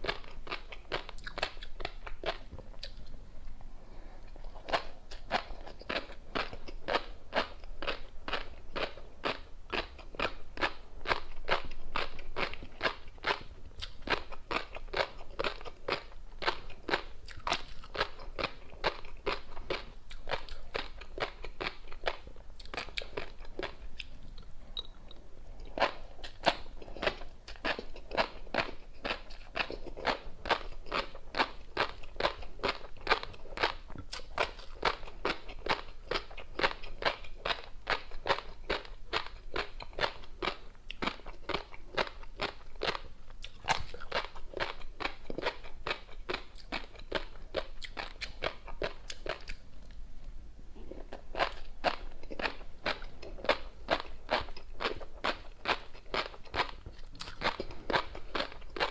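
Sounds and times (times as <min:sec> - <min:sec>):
crunchy chewing: 0:00.0 - 0:03.6, 0:04.2 - 0:50.0, 0:50.8 - 0:58.9.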